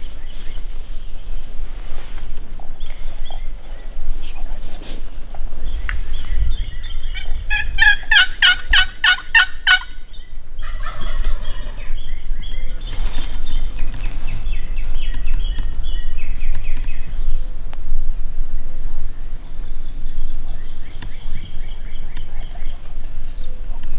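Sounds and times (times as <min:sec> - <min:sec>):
turkey gobbling: 0:05.3 - 0:14.0.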